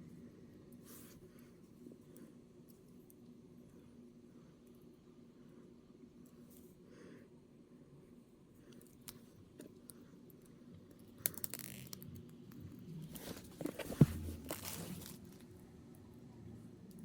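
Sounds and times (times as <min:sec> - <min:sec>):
crinkly plastic rustle: 0:13.1 - 0:15.5.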